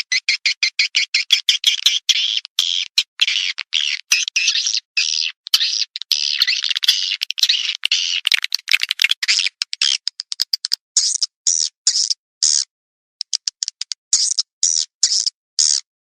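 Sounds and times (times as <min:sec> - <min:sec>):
swiftlet chirps and trills: 0:02.7 - 0:10.0
sharp clicks: 0:05.4 - 0:11.3, 0:13.2 - 0:14.4.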